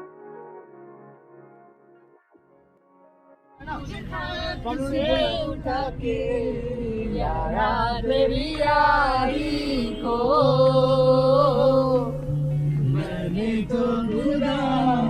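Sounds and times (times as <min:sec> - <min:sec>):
person singing gliding phrases: 0:03.6 - 0:15.0.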